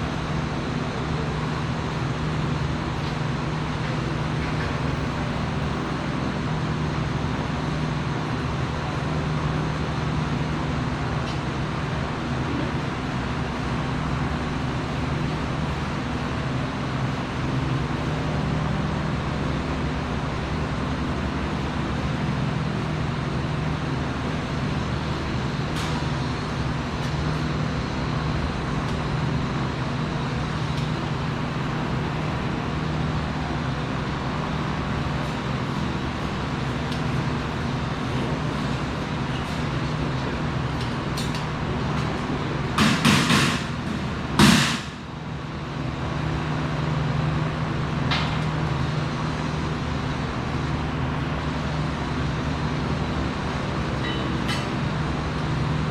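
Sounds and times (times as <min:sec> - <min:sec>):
low mechanical hum: 0:00.0 - 0:55.9.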